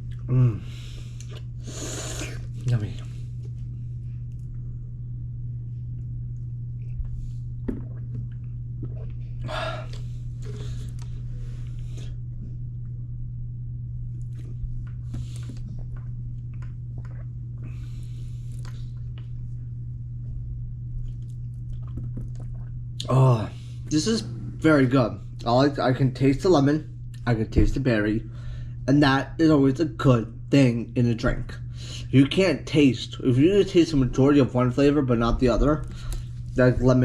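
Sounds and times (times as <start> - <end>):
person drinking: 0.0 - 3.1, 7.6 - 12.2, 15.1 - 19.2, 21.1 - 24.5
steady low hum: 0.0 - 37.0.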